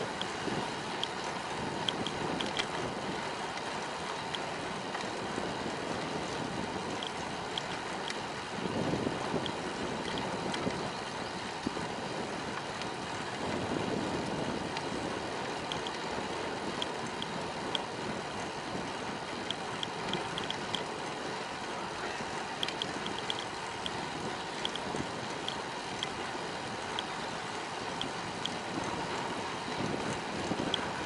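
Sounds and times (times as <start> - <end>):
bicycle rolling: 0.0 - 31.0
wind on microphone: 4.2 - 31.0
short high ticks: 19.4 - 20.9.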